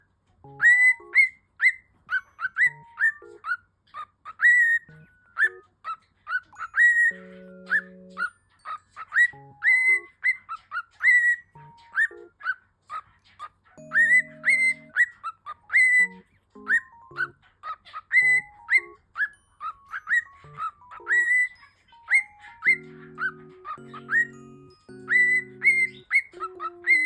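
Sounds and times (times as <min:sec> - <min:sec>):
pet bird whistled chirps: 0:00.5 - 0:27.0
held music notes: 0:13.8 - 0:15.0, 0:18.2 - 0:27.0.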